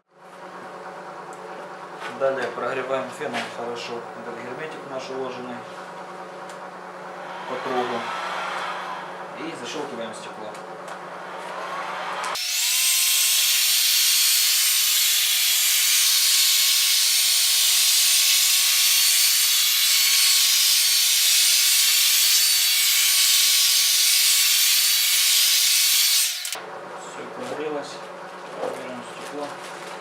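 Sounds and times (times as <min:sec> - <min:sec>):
heat gun blowing air: 0:12.4 - 0:26.6.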